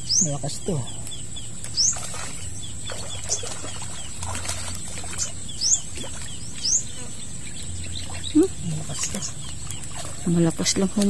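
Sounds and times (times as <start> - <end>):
bird chirping: 0.0 - 11.0
steady high-pitched whine: 0.0 - 11.0
fish splashing in water: 1.7 - 6.7, 7.9 - 11.0.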